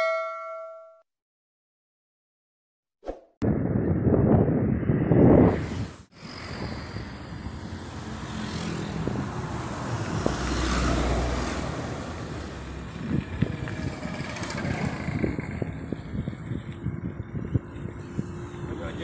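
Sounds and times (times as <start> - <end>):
road traffic noise: 3.6 - 19.0
truck engine passing: 6.2 - 19.0.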